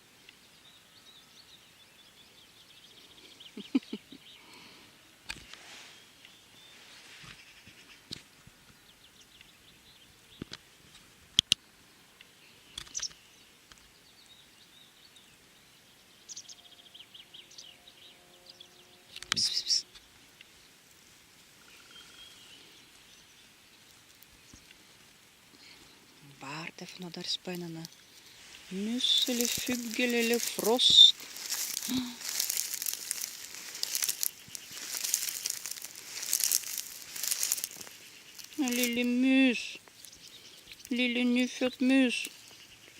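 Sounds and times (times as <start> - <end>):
rustling in dry leaves: 5.4 - 8.0, 20.2 - 42.9
faint bird chirps: 11.9 - 20.7, 21.6 - 23.8.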